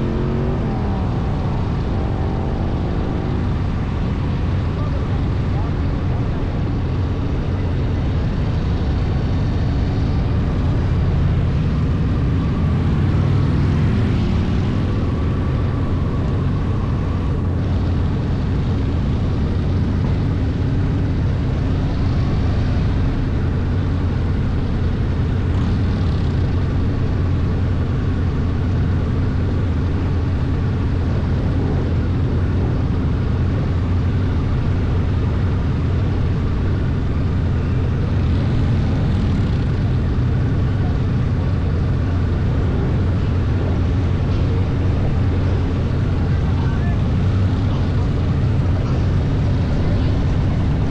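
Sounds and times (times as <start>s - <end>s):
motorcycle engine cruising: 0.0s - 50.9s.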